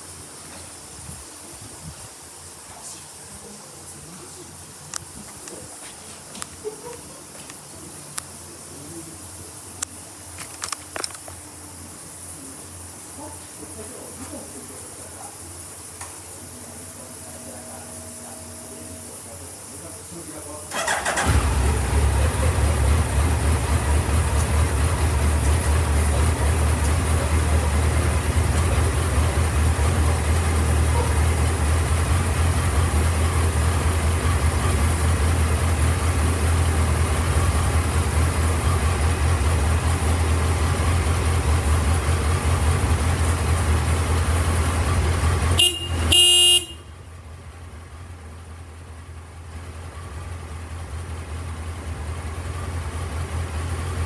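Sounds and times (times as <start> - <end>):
motorcycle engine idling: 16.4 - 54.0
motorcycle horn: 45.4 - 47.1.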